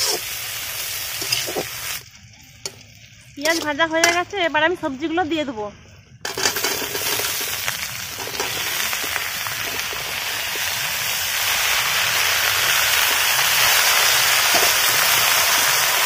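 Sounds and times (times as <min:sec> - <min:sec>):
metal spatula scraping: 0:00.0 - 0:00.3, 0:01.1 - 0:02.0, 0:03.4 - 0:04.4, 0:06.3 - 0:09.9
vegetables sizzling in hot oil: 0:00.0 - 0:05.1, 0:06.2 - 0:16.0.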